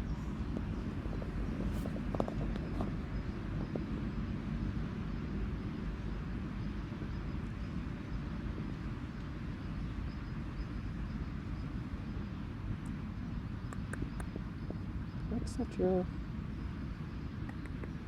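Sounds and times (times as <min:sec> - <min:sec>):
low outdoor rumble: 0:00.0 - 0:18.0
faint clicks: 0:13.7 - 0:14.4, 0:17.4 - 0:18.0.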